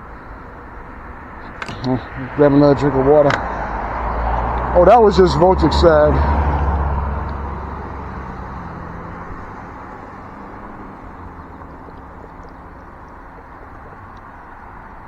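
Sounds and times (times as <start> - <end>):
low traffic hum: 0.0 - 15.0
vehicle passing close by: 1.2 - 15.0.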